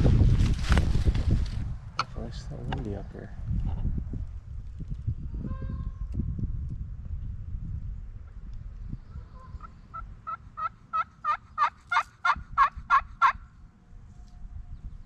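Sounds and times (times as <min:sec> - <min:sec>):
low wind rumble: 0:00.0 - 0:15.0
turkey yelping: 0:09.2 - 0:13.4.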